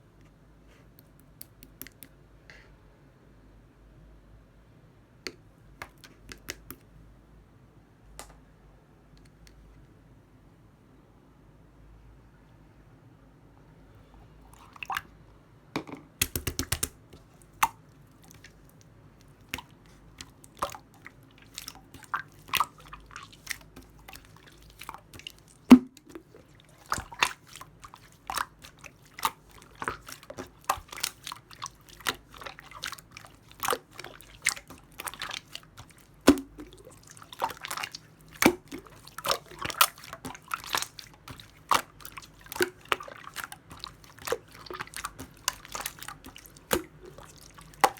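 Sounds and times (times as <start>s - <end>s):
wet clicks and pops: 1.0s - 2.2s, 5.3s - 6.8s, 16.2s - 18.6s, 19.2s - 47.9s
slime squished by hand: 16.2s - 47.9s.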